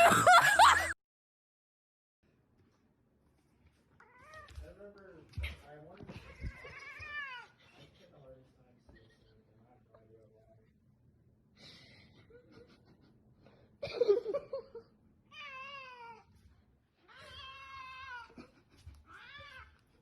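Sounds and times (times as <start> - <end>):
cat meowing: 6.2 - 7.6, 15.3 - 16.3, 17.0 - 18.4.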